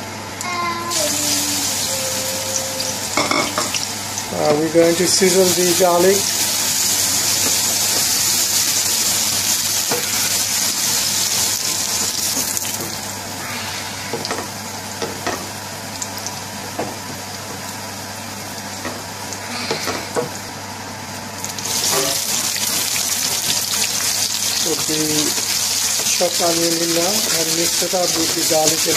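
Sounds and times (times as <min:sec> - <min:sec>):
garlic sizzling in a pan: 0:00.8 - 0:28.9.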